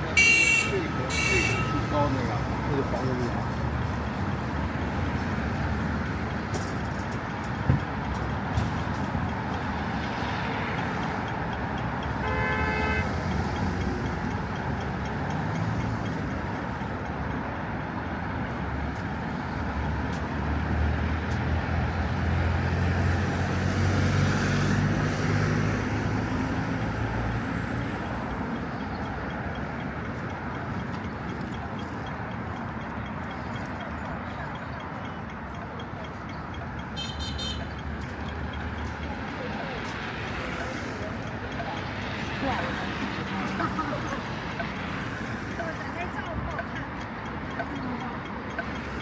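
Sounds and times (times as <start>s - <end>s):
city road traffic: 0.0s - 49.0s
car horn toot: 0.1s - 1.9s, 12.2s - 13.1s, 37.0s - 37.6s
passing vehicle engine drone: 20.4s - 27.8s.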